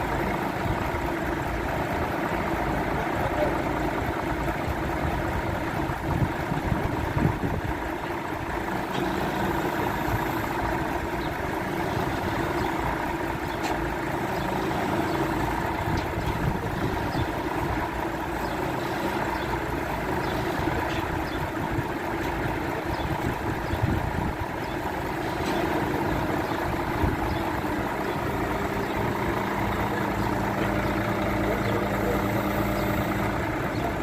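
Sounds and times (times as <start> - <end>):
truck engine running: 0.0 - 34.0.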